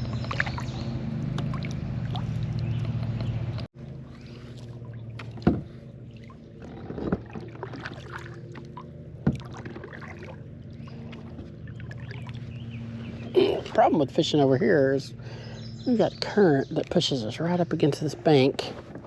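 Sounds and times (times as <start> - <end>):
steady low hum: 0.0 - 19.0
paddle knocking against hull: 5.2 - 5.8, 9.2 - 10.2.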